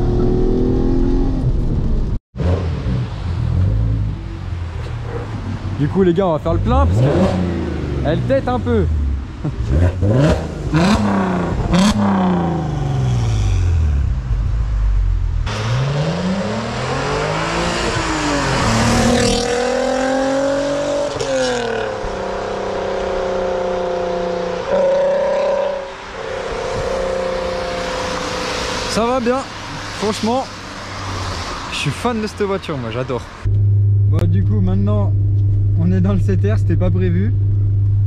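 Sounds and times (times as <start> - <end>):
car engine revving and accelerating: 0.0 - 32.4.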